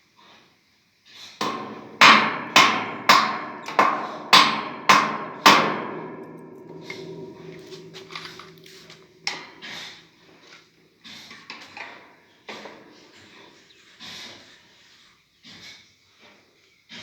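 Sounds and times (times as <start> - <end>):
hammer strikes with ringing tone: 1.4 - 9.9.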